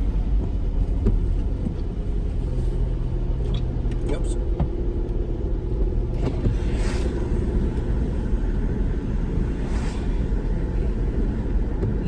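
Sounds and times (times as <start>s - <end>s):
engine and tyre rumble: 0.0s - 12.0s
soft swishes: 6.2s - 11.6s.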